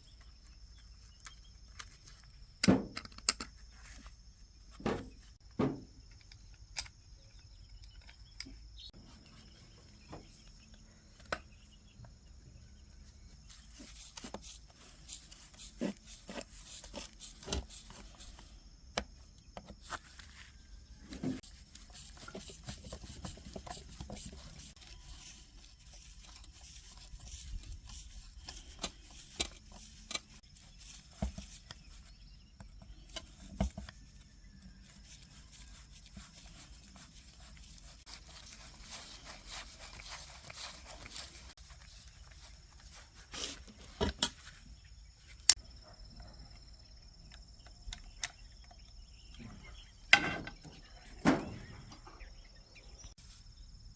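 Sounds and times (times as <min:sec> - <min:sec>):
light clicks and taps of tools: 0:01.0 - 0:04.1, 0:06.1 - 0:08.7.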